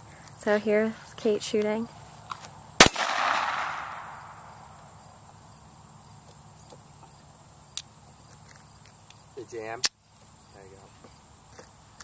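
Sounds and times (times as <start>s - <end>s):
insects chirring: 0.0s - 12.0s
pistol shot echo: 2.8s - 4.5s.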